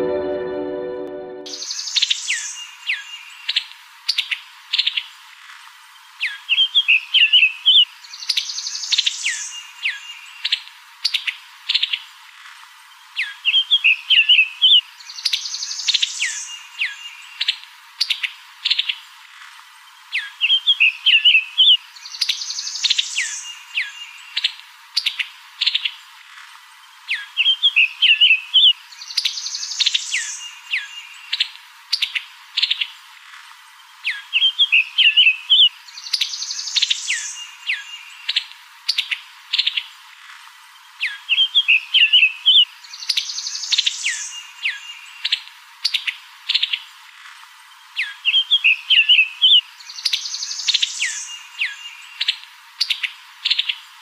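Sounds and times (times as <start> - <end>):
birdsong chirps and trills: 1.5 - 5.1, 19.8 - 26.1, 26.8 - 33.1, 33.8 - 40.0, 40.7 - 54.0.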